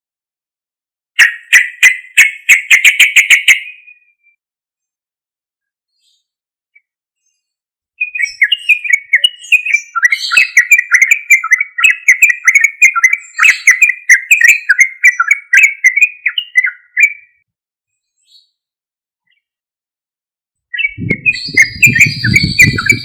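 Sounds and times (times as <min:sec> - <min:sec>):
bird singing chattering song: 0:01.2 - 0:04.2, 0:06.0 - 0:17.4, 0:20.7 - 0:23.0.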